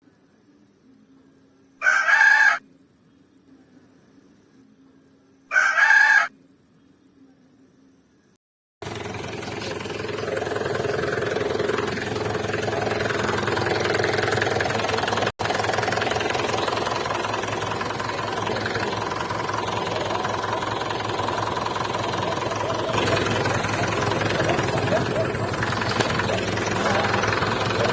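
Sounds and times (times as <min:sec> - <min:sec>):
diesel engine running: 0:08.8 - 0:27.9.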